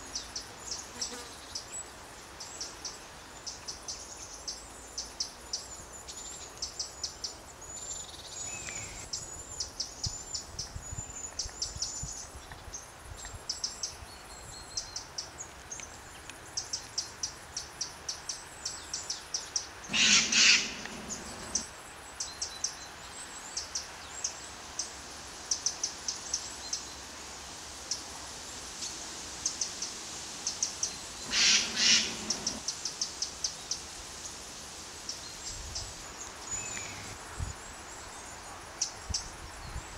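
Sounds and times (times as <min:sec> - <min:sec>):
birds chirping: 0:19.8 - 0:21.7, 0:30.6 - 0:32.7
harsh bird calls: 0:19.9 - 0:21.6, 0:31.2 - 0:32.7.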